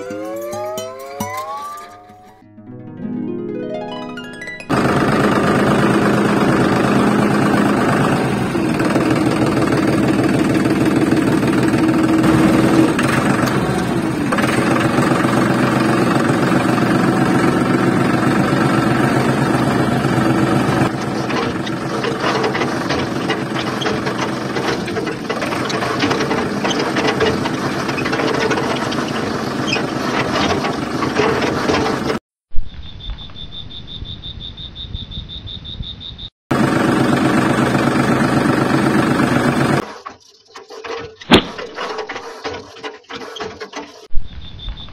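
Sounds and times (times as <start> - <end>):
toy tractor engine running: 4.7 - 32.2, 36.5 - 44.1.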